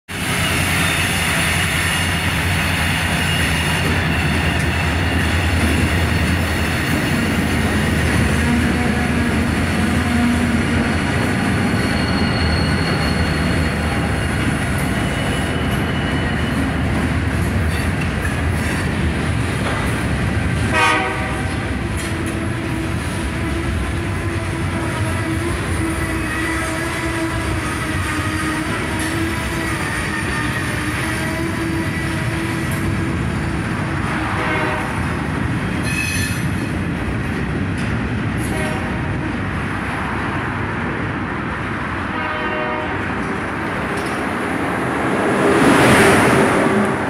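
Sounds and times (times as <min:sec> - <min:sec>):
diesel locomotive engines running: 0:00.1 - 0:47.0
train wheels rumbling on rails: 0:00.1 - 0:47.0
locomotive horn: 0:08.2 - 0:10.9, 0:20.7 - 0:32.4, 0:34.1 - 0:35.1, 0:38.4 - 0:39.2, 0:42.0 - 0:43.3
wheel squeal: 0:10.8 - 0:16.8.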